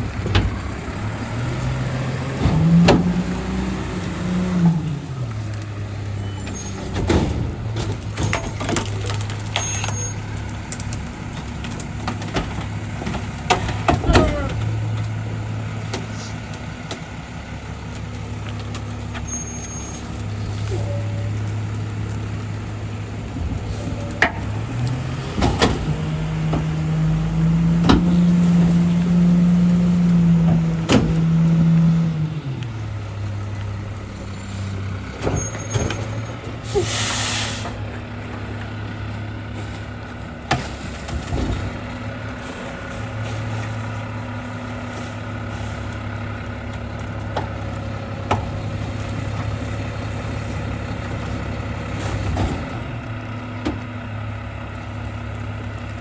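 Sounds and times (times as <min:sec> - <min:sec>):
garbage truck engine idling and revving: 0:00.0 - 0:56.0
air hiss: 0:36.7 - 0:37.8.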